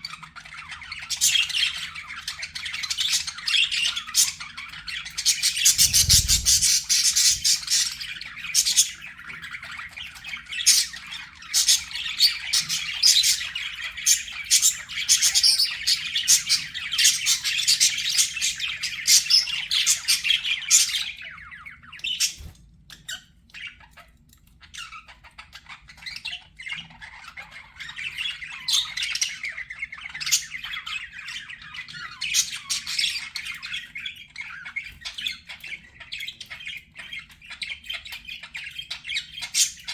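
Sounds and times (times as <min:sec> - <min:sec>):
budgerigars chattering: 0:00.0 - 0:21.2.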